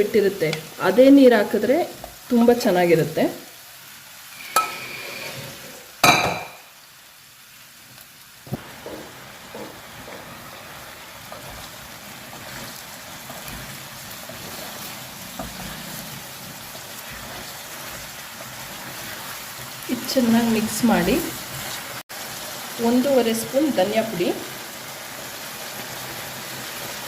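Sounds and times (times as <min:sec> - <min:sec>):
meat sizzling in a pan: 0:00.0 - 0:27.0
knock: 0:08.5 - 0:10.2.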